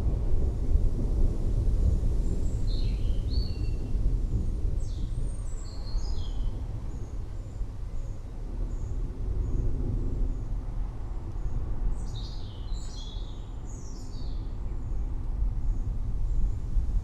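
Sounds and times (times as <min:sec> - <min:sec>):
forest birds chirping: 0:02.4 - 0:03.9, 0:04.8 - 0:09.7, 0:11.3 - 0:16.6.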